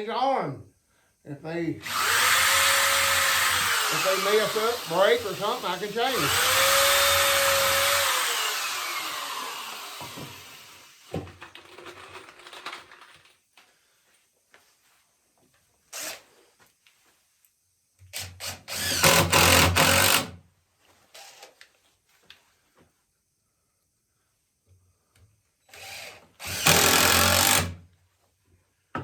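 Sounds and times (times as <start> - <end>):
electric drill boring into wood: 1.8 - 11.4, 16.0 - 16.2, 18.2 - 20.4, 25.7 - 27.8.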